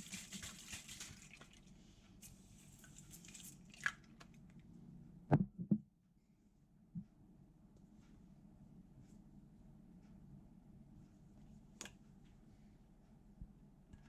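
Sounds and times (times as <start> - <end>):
dripping: 0.0 - 1.8, 2.6 - 4.1.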